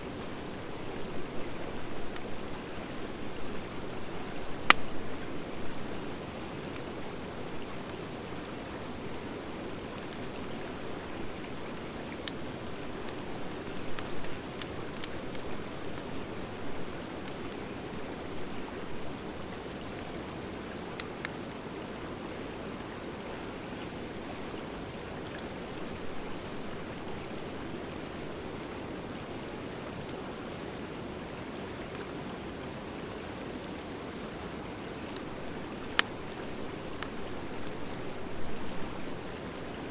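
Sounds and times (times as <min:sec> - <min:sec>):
fire crackling pops: 0:04.2 - 0:05.1, 0:11.7 - 0:16.1, 0:35.1 - 0:38.4.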